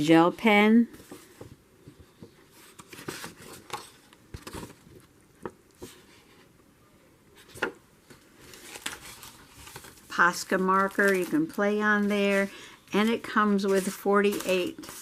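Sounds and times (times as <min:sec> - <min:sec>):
paper rustling: 0:02.1 - 0:05.1, 0:07.4 - 0:15.0.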